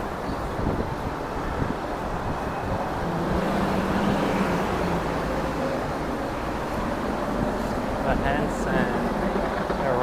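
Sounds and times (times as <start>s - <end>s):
wind on microphone: 0.0s - 6.1s
street traffic: 0.0s - 10.0s.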